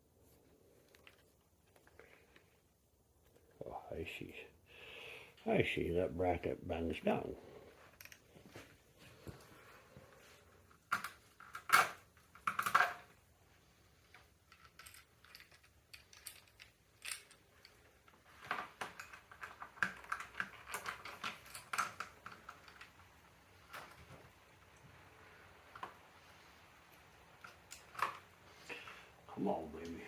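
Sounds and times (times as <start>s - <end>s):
metal parts and tools clinking: 10.7s - 13.2s, 14.0s - 24.1s.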